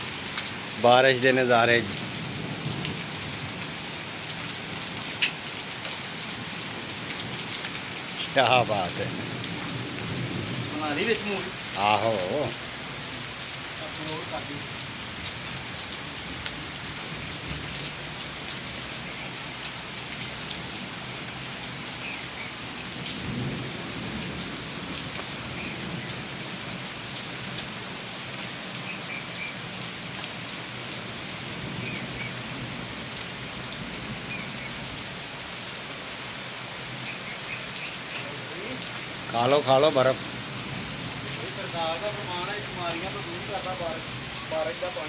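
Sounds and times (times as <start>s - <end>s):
hail ticking: 0.0s - 27.9s, 41.2s - 45.0s
heavy rain pouring: 0.0s - 45.0s.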